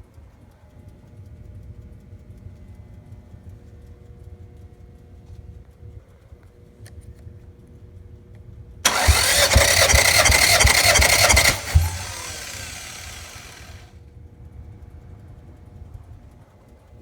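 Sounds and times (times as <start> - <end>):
engine cranking on starter: 8.8 - 13.9.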